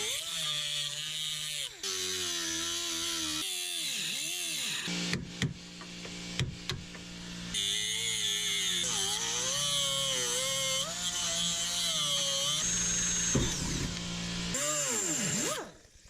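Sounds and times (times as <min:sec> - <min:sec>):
power drill running: 0:06.9 - 0:15.9.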